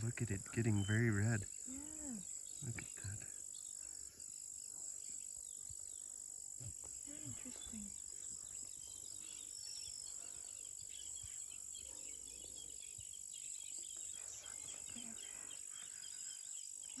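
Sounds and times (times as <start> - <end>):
faint insect chorus: 0.0 - 17.0
small bird chirps: 0.0 - 17.0.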